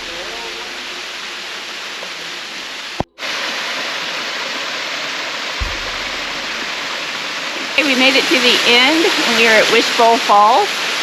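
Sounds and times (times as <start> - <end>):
waterfall rushing: 0.0 - 11.0
short low rumble: 5.6 - 7.2.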